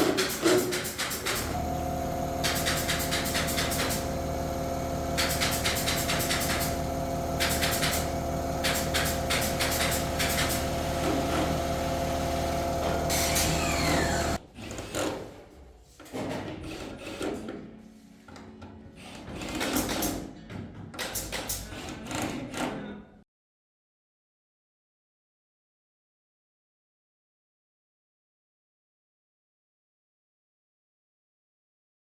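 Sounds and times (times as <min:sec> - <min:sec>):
rapid clicking: 0:00.7 - 0:13.1
power tool humming: 0:01.0 - 0:14.4.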